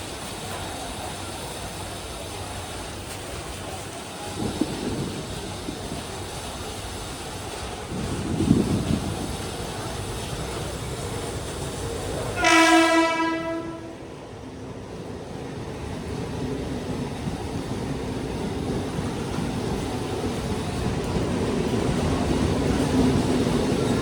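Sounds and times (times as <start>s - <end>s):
train rumbling on tracks: 0.0s - 24.0s
train horn blast: 12.4s - 14.1s.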